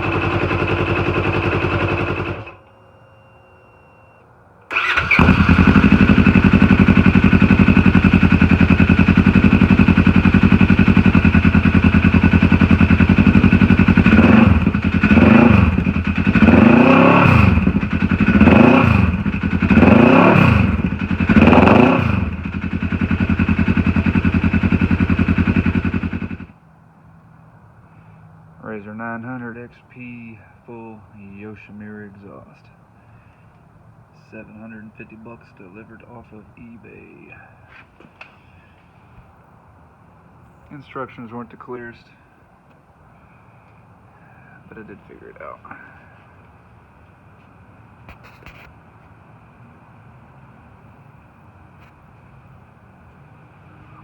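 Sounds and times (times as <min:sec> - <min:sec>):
engine idling and revving: 0:00.0 - 0:02.6, 0:04.7 - 0:26.6.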